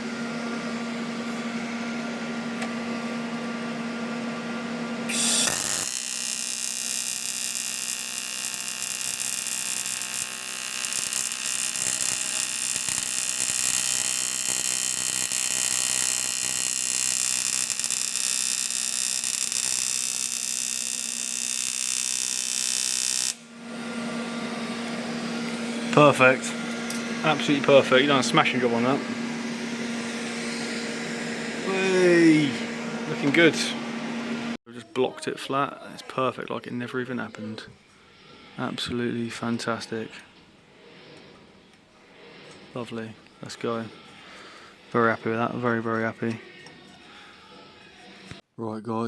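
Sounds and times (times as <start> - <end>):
rotary power tool whining: 5.1 - 34.6
steady hum: 23.3 - 34.6.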